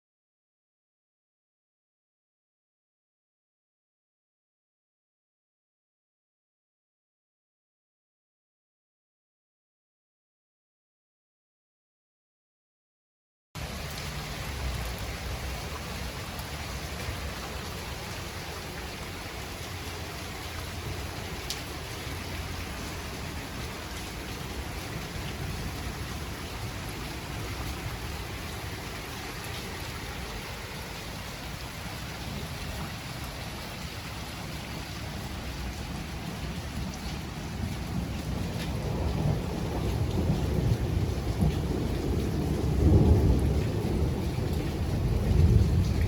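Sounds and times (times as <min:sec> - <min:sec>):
steady rain falling: 0:13.6 - 0:46.0.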